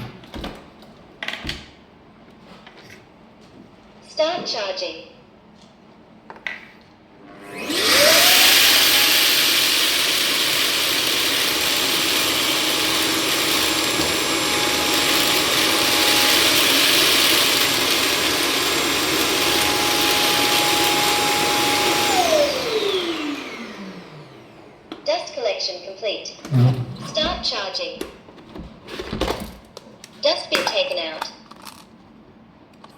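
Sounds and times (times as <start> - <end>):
suction motor whining: 7.4 - 24.7.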